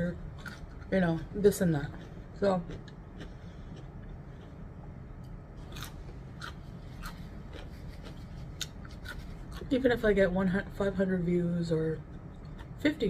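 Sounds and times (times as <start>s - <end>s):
low steady hum: 0.0s - 13.0s
crisp chewing of pickled bean: 0.1s - 10.0s.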